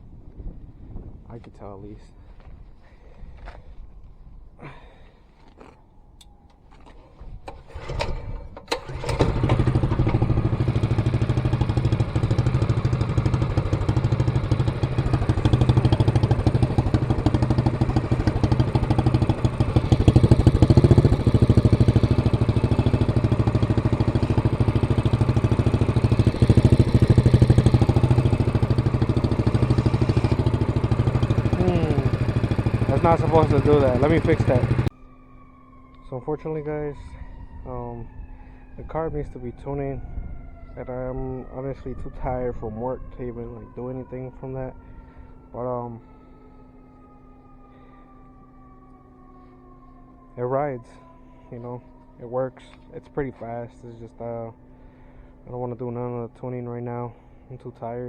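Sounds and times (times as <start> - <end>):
minibike engine running: 7.5 - 34.9.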